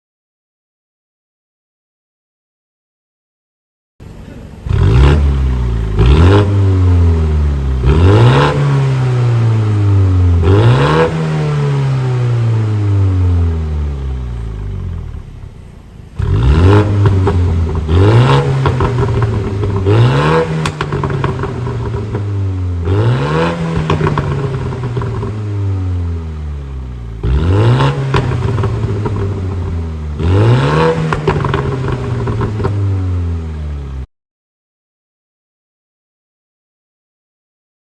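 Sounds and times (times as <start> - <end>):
exhaust crackling: 4.1 - 34.0
car exhaust revving: 4.4 - 34.0.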